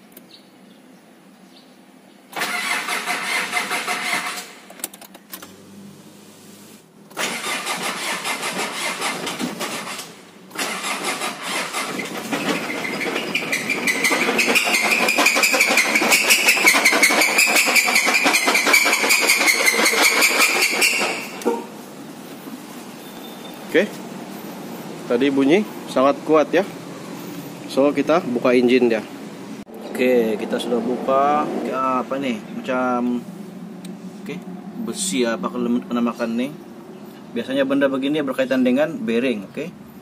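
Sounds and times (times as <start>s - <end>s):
diesel engine starting and running: 2.3s - 38.9s
metallic engine knocking: 12.4s - 21.3s.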